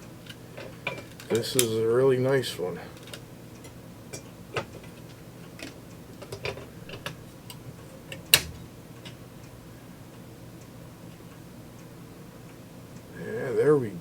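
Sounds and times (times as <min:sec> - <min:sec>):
metal lantern clicks and clanks: 0:00.2 - 0:02.3, 0:02.9 - 0:09.2.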